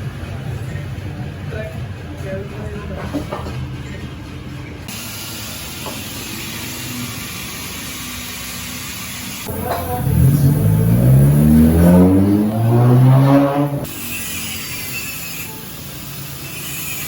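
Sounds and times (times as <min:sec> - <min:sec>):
car engine revving up: 0:09.5 - 0:14.0.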